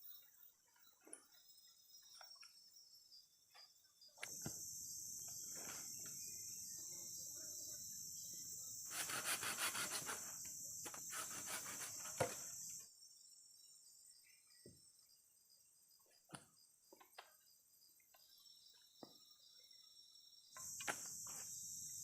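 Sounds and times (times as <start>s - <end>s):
insect buzzing: 4.2s - 12.9s, 20.4s - 22.0s.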